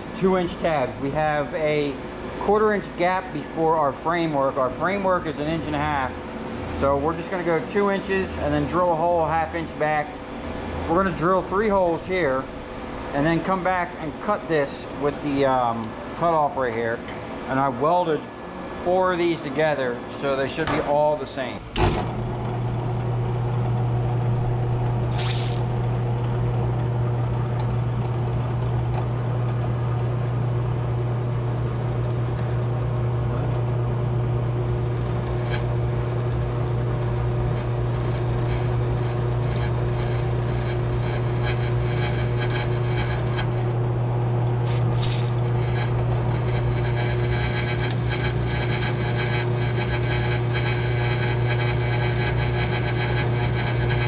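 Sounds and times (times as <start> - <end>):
steady machine hum: 0.0 - 54.0
brief clicks or scrapes: 25.1 - 25.7, 44.6 - 50.0.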